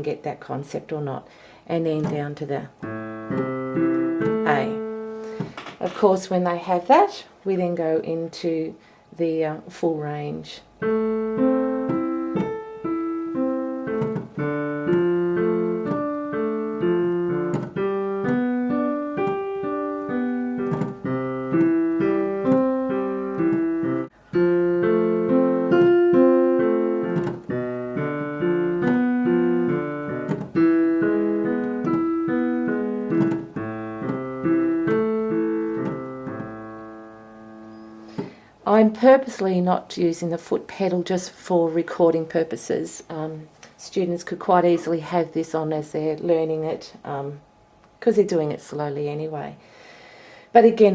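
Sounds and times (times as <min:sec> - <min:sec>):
piano broken chords: 0:01.8 - 0:06.6, 0:09.9 - 0:41.0.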